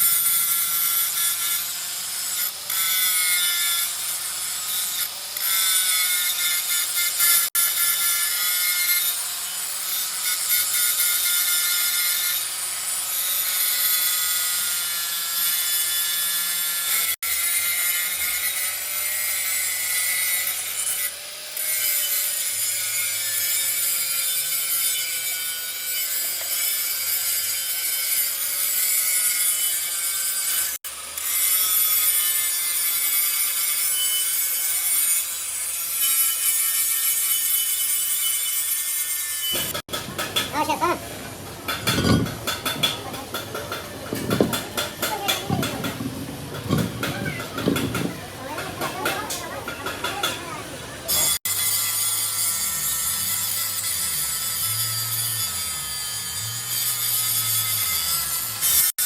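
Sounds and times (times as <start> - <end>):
metal-cutting tool rasping: 0.0 - 59.0.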